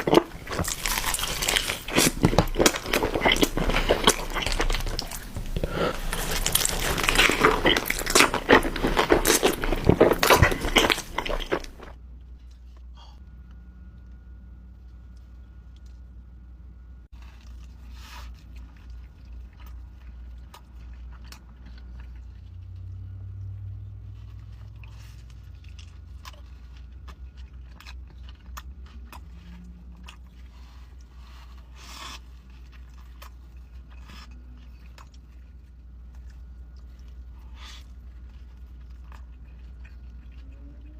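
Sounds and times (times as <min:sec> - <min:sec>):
crisp crunches of biting: 0:00.0 - 0:11.9
chewing with wet mouth clicks: 0:00.0 - 0:12.0, 0:17.2 - 0:40.9
steady low hum: 0:00.0 - 0:40.9.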